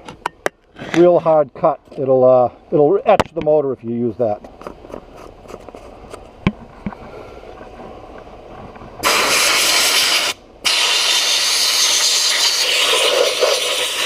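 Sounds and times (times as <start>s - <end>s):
sandblast gun hissing: 9.0s - 14.0s.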